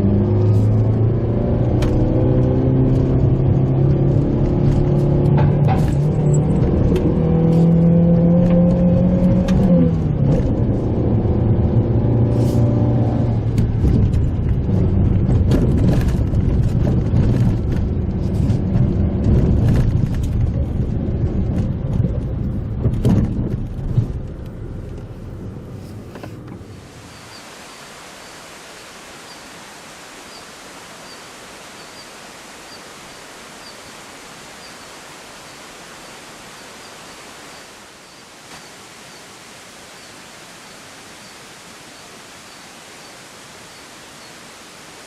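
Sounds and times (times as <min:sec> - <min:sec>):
car engine under load: 0:00.0 - 0:27.4
knocks and rattles from road: 0:04.2 - 0:07.8, 0:13.4 - 0:26.9.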